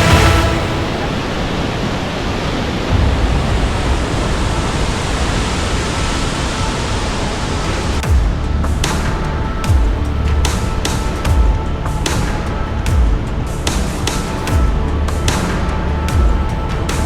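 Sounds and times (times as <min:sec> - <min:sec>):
sharp hits: 0:00.0 - 0:01.9
waterfall roaring: 0:00.0 - 0:14.5.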